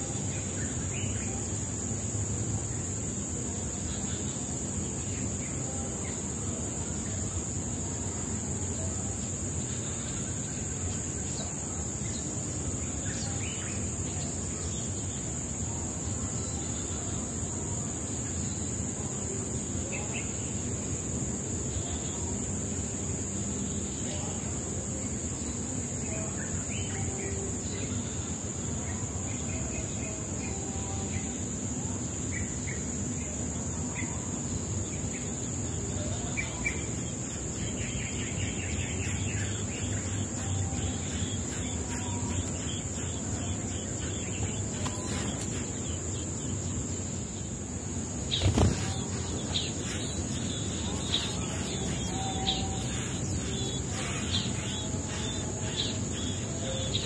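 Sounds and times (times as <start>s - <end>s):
high insect trill: 0.0s - 57.0s
bird chirps: 48.2s - 57.0s.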